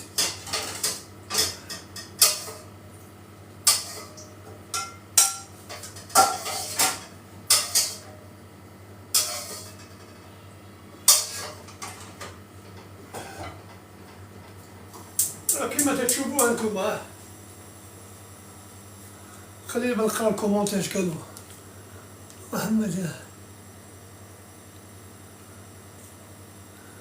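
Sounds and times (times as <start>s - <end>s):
cookware and utensils clattering: 0.1s - 2.7s, 3.6s - 8.1s, 9.1s - 10.2s, 11.1s - 13.8s.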